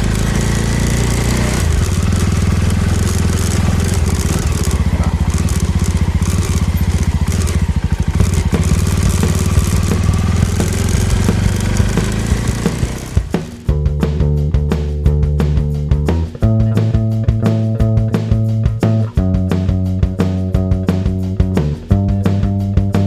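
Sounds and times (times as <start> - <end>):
wind and road noise: 0.0 - 13.4
motorcycle engine running: 0.0 - 23.0
guitar music: 13.2 - 23.0.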